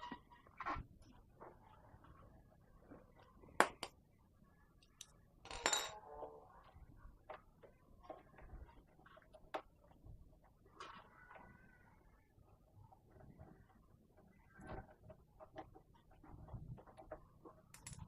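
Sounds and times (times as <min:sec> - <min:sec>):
metal tools clinking: 0:05.5 - 0:06.0, 0:17.8 - 0:18.0.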